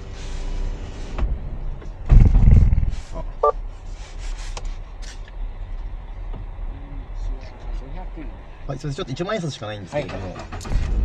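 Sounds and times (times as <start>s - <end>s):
car engine stalling shudder: 1.2s - 3.4s, 10.2s - 11.0s.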